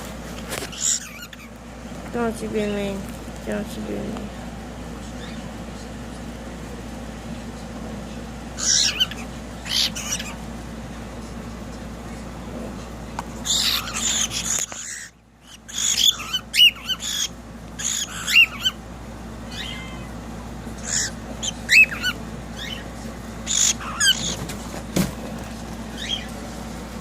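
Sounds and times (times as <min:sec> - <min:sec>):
cockatiels screeching and whistling: 0:00.6 - 0:01.6, 0:05.1 - 0:05.6, 0:08.5 - 0:10.5, 0:13.4 - 0:24.6, 0:25.9 - 0:26.4.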